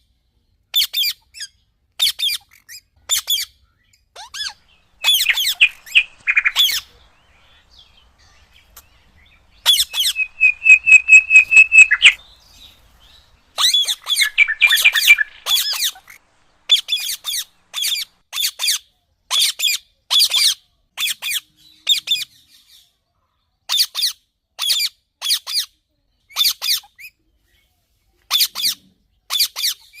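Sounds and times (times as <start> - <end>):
parrots squawking: 4.2 - 18.6.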